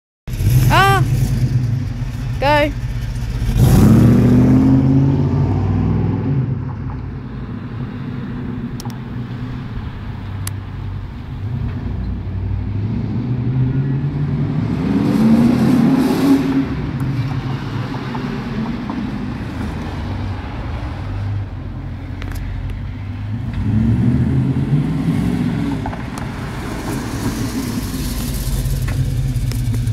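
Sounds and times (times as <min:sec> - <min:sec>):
car engine rumbling and revving: 0:00.3 - 0:29.9.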